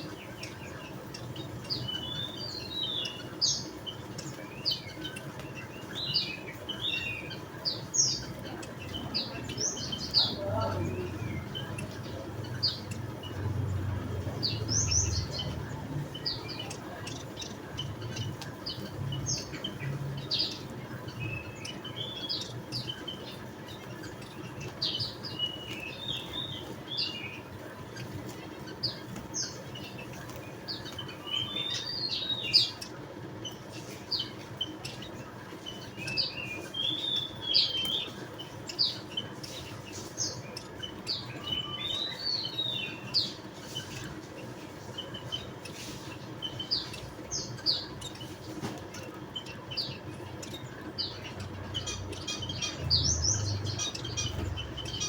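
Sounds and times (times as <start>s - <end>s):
munias chirping: 0.0s - 55.0s.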